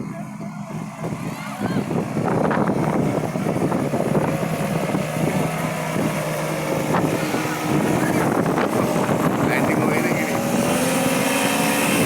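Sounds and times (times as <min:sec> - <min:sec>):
paramotor engine droning: 0:00.0 - 0:12.0
wind buffeting microphone: 0:00.0 - 0:12.0.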